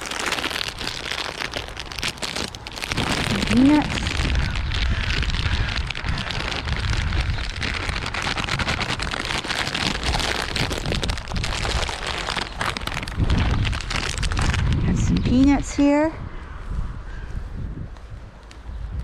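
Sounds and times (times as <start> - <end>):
crackling hiss: 0.0 - 14.8
wind buffeting microphone: 0.0 - 19.0.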